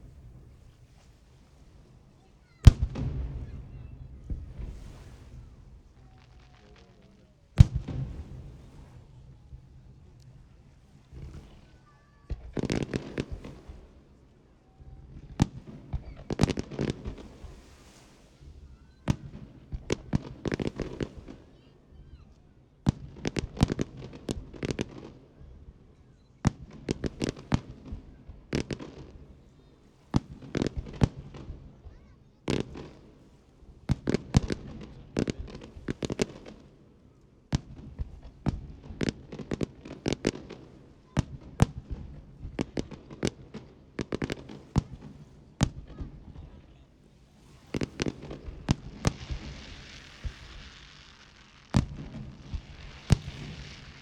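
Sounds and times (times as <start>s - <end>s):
steady hiss: 46.2s - 54.0s
firework shells bursting: 47.5s - 54.0s.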